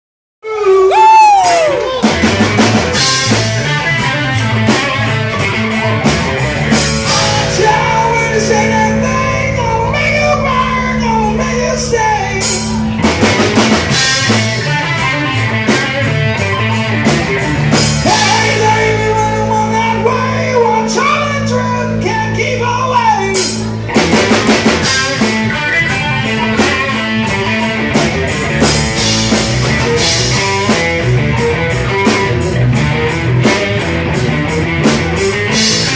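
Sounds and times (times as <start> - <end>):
bass guitar: 0.4 - 35.9
drum kit: 0.4 - 35.9
electric guitar: 0.4 - 35.9
person singing: 7.0 - 13.0, 18.0 - 23.6.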